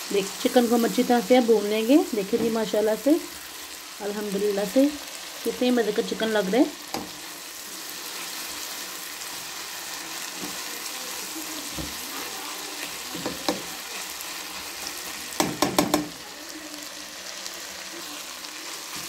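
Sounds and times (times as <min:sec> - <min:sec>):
chicken frying in oil: 0:00.0 - 0:19.0
spatula knocking against pan: 0:13.2 - 0:13.7, 0:15.4 - 0:16.2.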